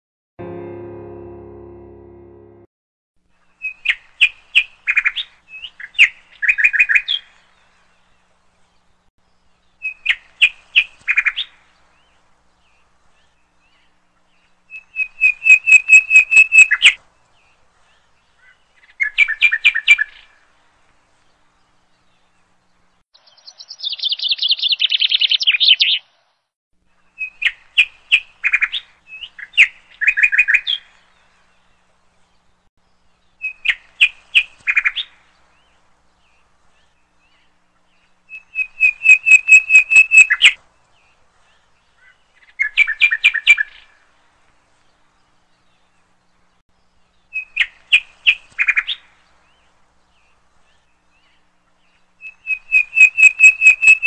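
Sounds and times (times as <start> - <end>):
small bird chirping: 23.2 - 26.2, 38.3 - 40.6, 52.0 - 54.0.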